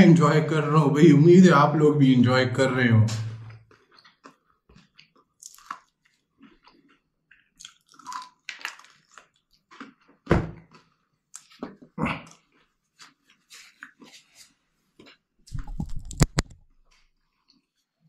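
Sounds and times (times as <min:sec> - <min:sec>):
chewing crispy fried chicken: 0:03.6 - 0:15.4, 0:16.2 - 0:18.0.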